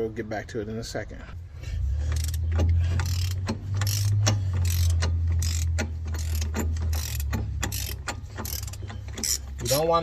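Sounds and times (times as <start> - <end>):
impact wrench hammering: 2.1 - 9.8.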